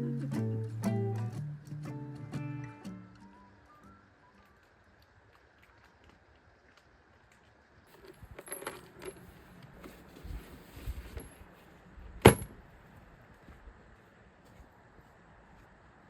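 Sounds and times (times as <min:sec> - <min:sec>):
metallic rattling and clinking: 0:07.9 - 0:09.3, 0:12.2 - 0:12.5.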